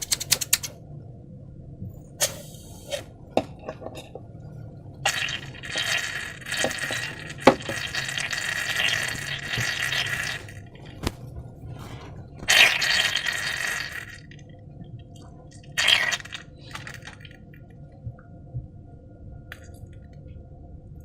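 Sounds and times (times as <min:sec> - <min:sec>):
sharp clicks: 0:00.0 - 0:00.8.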